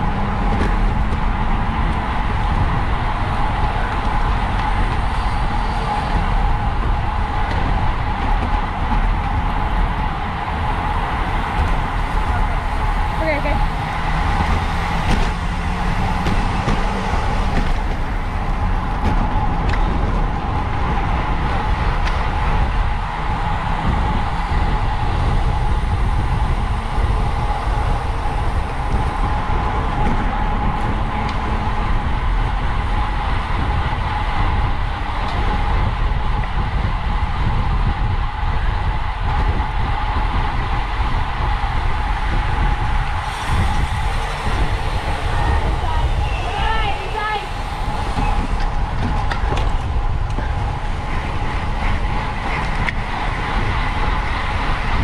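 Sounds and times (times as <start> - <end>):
wind rush on microphone: 0.0 - 55.0
road hiss under tyres: 41.6 - 51.8.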